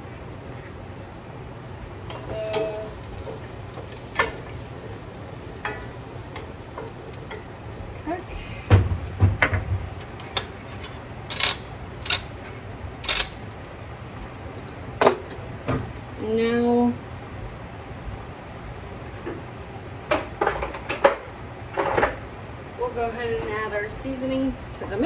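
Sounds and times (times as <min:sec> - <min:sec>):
food sizzling in a pan: 0:02.0 - 0:17.2
dishes clinking and knocking: 0:08.1 - 0:15.9, 0:20.0 - 0:22.3.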